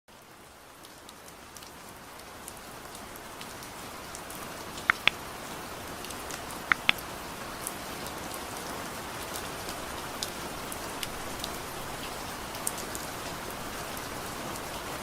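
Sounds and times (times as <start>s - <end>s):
steady soft rain: 0.1s - 15.0s
sharp pops: 4.9s - 5.2s, 6.7s - 7.0s.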